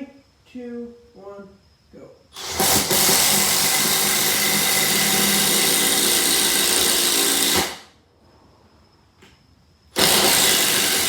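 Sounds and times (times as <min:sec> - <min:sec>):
impact driver drilling: 0:02.4 - 0:07.9, 0:09.9 - 0:11.0.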